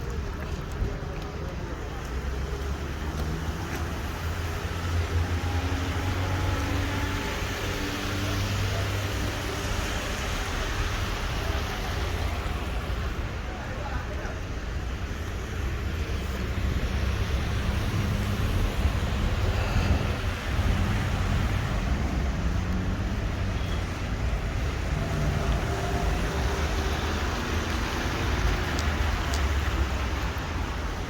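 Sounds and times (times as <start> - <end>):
street traffic in rain: 0.0 - 31.0.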